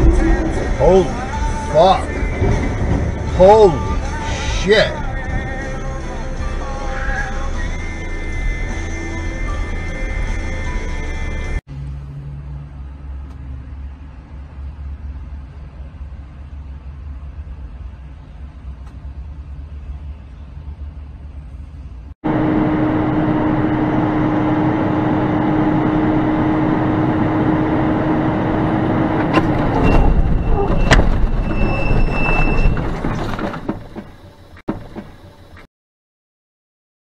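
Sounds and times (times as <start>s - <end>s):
low rumble: 0.0s - 27.4s
truck engine and road noise: 0.0s - 35.7s
sharp knocks and thuds: 2.2s - 3.4s, 29.3s - 35.2s.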